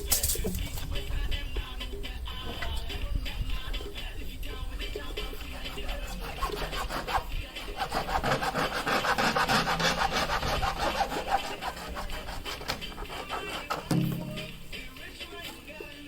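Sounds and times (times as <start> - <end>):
hand saw rasping: 4.8 - 14.5.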